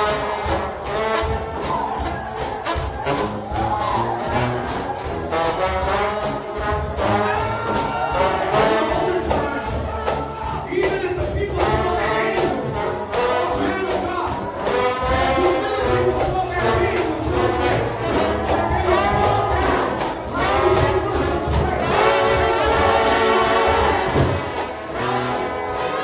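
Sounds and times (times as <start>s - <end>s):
tambourines: 0.0s - 26.0s
trombones playing gospel tune: 0.0s - 26.0s.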